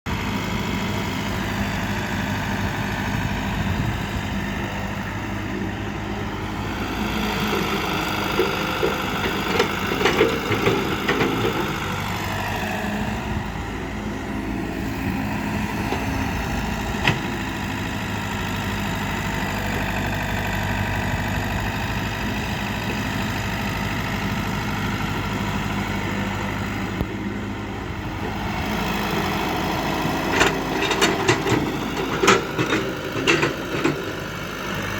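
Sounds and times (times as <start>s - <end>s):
diesel engine running: 0.1s - 34.9s
rattling and knocks: 7.4s - 11.8s.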